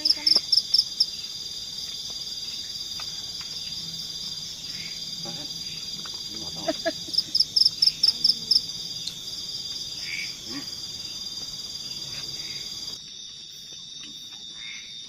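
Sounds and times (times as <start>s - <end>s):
night insects trilling: 0.0s - 15.0s.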